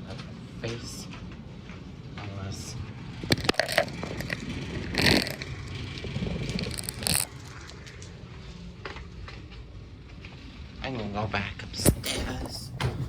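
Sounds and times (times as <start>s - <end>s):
scraping and rustling handling: 11.8s - 13.0s.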